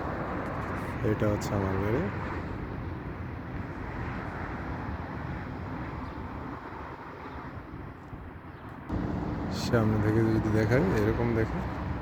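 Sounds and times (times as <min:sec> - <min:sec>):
vehicle engine running: 0:08.9 - 0:12.0.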